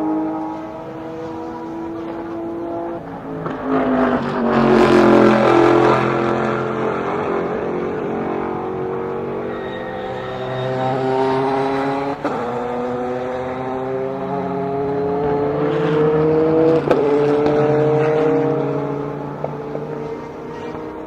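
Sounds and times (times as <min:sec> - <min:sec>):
race cars passing: 0:00.0 - 0:21.0.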